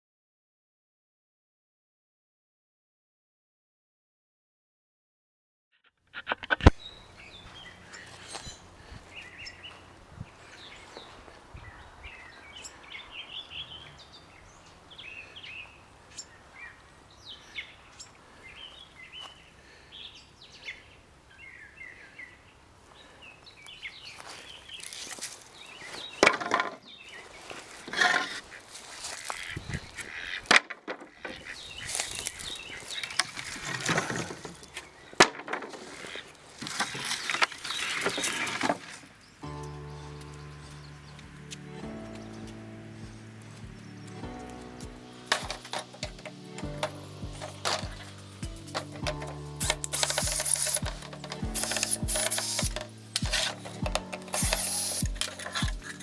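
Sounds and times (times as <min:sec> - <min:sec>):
birds squawking: 0:06.2 - 0:24.7, 0:27.0 - 0:30.5, 0:49.7 - 0:56.0
birds chirping: 0:06.3 - 0:30.5, 0:31.2 - 0:35.2, 0:36.0 - 0:56.0.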